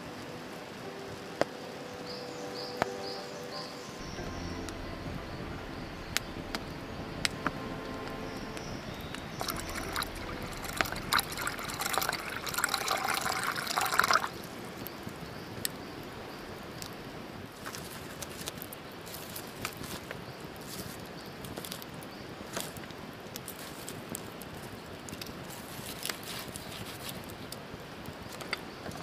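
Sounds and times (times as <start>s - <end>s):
liquid being poured: 8.9s - 14.5s.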